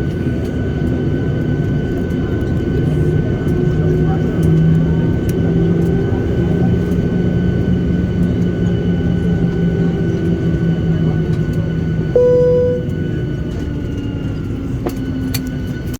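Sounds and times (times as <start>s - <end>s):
airplane cabin hum: 0.0s - 15.5s
cabin chime: 12.2s - 12.9s.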